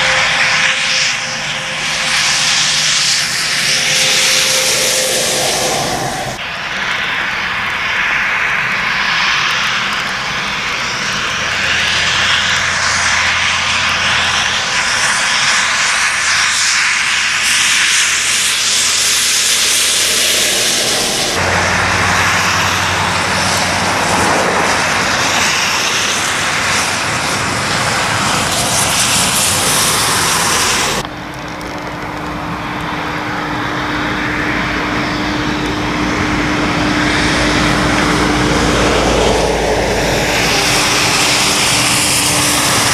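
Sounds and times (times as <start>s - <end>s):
tyres hissing through water: 0.0s - 31.0s, 33.2s - 42.9s
lorry diesel engines: 0.0s - 42.9s
steady engine hum: 0.0s - 42.9s.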